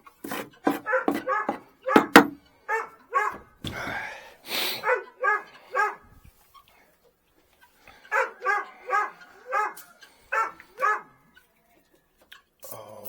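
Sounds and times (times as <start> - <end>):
dog barking: 0.7 - 3.6, 4.7 - 6.2, 8.0 - 11.3.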